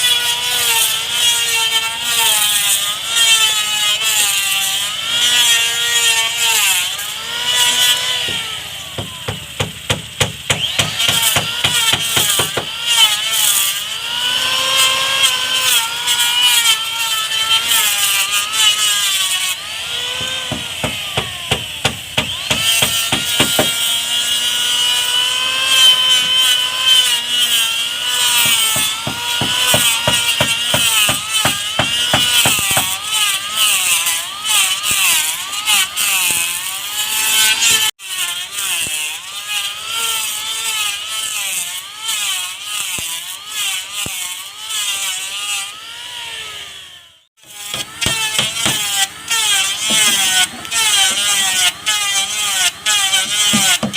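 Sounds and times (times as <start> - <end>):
power tool whining on wood: 0.0 - 53.9
rapid sharp knocks: 9.0 - 12.7, 20.2 - 23.8, 47.7 - 48.9.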